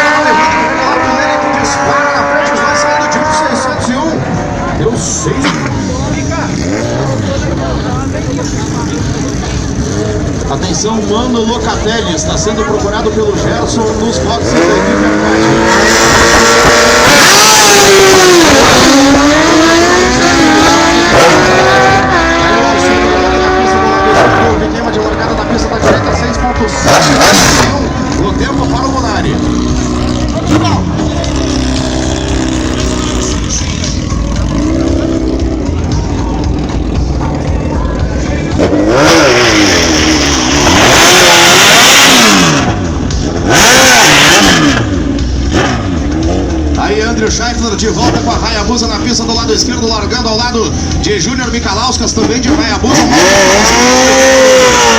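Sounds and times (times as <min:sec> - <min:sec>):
motorcycle engines revving hard: 0:00.0 - 0:54.9.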